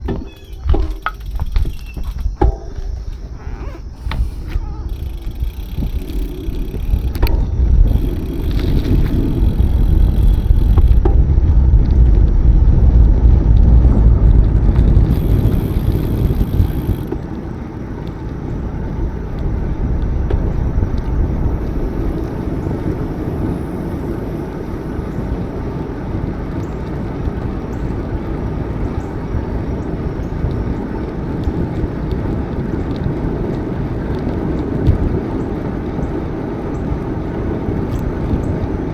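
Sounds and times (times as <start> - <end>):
bicycle tyres rolling: 0.0 - 38.9
wind buffeting microphone: 0.0 - 38.9.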